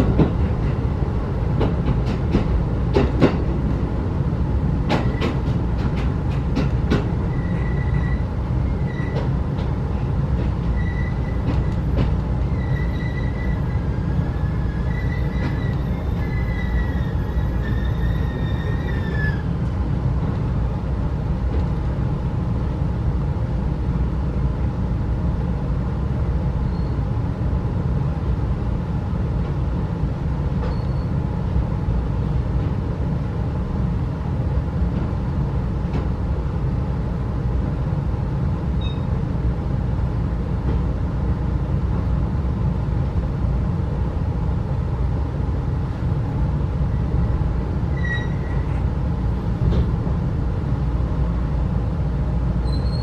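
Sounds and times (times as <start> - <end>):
train coach rumble: 0.0 - 53.0
faint high squeak: 12.6 - 13.8, 14.4 - 19.4, 26.7 - 27.0, 30.6 - 31.1, 38.8 - 39.1, 48.0 - 48.8, 52.6 - 53.0.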